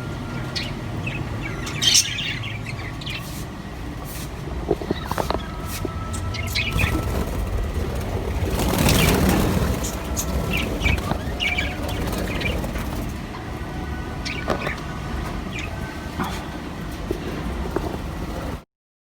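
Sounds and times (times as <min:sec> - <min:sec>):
parrots chirping: 0:00.2 - 0:03.4, 0:04.7 - 0:13.2
low rumble: 0:04.5 - 0:14.0
loud rustle: 0:05.6 - 0:13.2.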